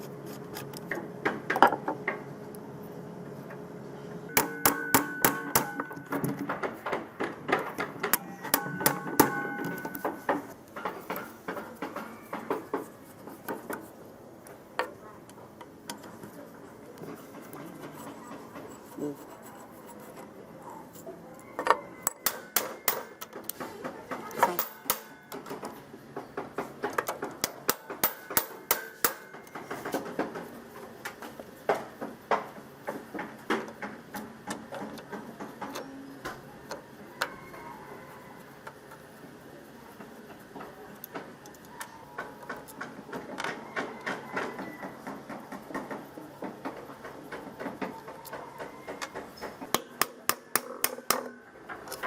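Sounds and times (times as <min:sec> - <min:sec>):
hand tools and metal parts clinking: 0:24.3 - 0:25.8, 0:26.9 - 0:30.1.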